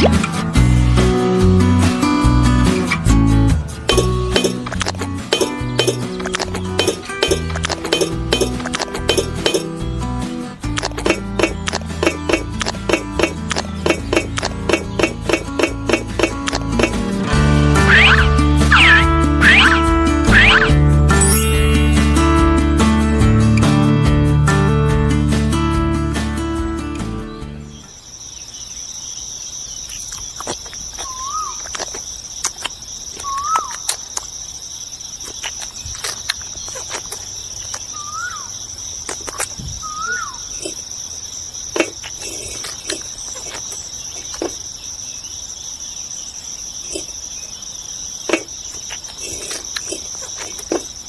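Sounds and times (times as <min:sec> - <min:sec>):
sharp clicks: 0:03.9 - 0:09.7, 0:10.7 - 0:17.0
high-pitched insect trilling: 0:17.8 - 0:22.4, 0:27.9 - 0:51.0.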